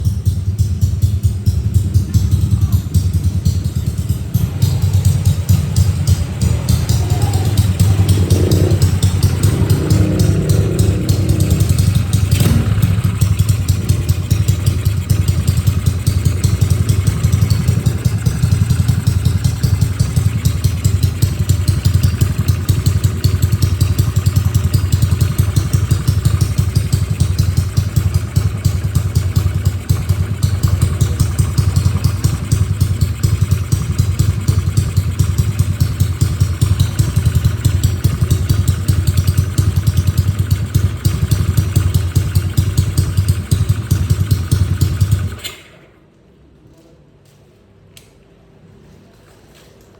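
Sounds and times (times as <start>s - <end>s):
scooter engine idling: 0.0s - 45.8s.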